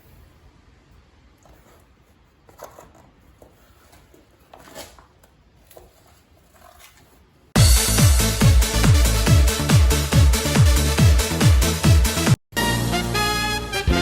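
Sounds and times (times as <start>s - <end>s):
electronic dance music: 7.6s - 14.0s.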